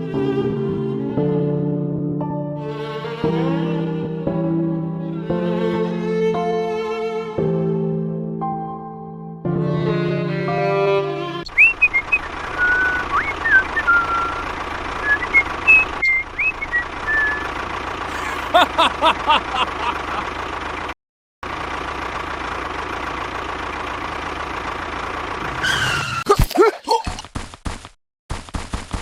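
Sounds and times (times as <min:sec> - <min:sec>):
birds chirping: 0:11.5 - 0:17.5.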